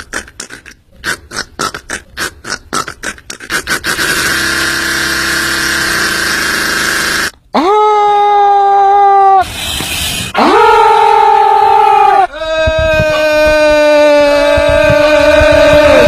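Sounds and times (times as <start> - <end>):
harsh hissing squeal: 9.4 - 10.6.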